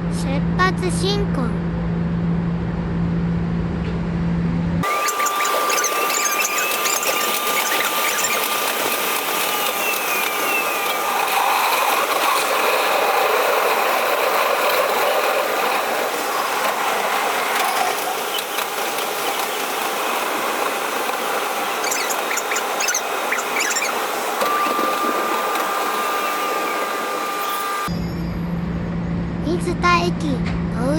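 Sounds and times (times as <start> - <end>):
wheel-on-rail running noise: 4.8 - 27.9
electric train motor whine: 4.8 - 29.4.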